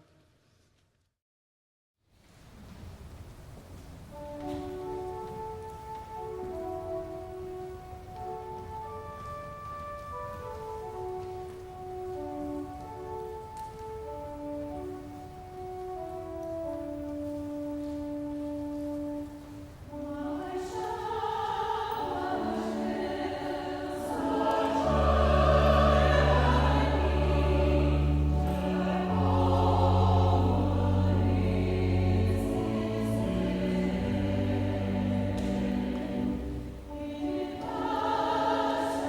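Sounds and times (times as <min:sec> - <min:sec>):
choir singing: 0:19.9 - 0:39.0
low sustained bass notes: 0:24.1 - 0:37.2.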